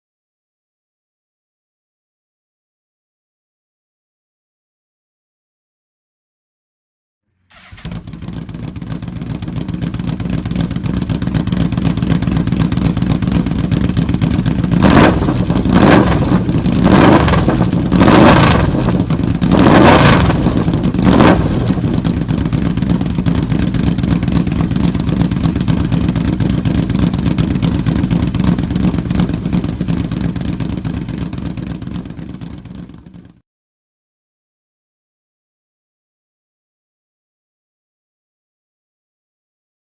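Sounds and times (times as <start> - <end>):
motorcycle engine idling: 7.5 - 33.4
engine revving in throttle blips: 14.8 - 22.1.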